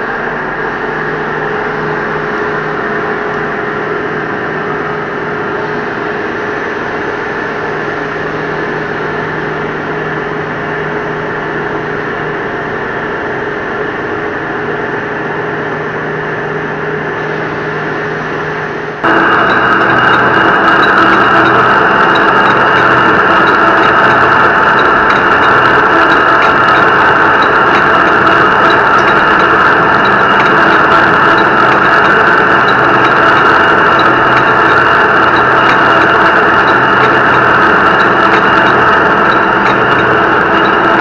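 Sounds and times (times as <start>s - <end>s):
metal lathe humming: 17.1s - 41.0s.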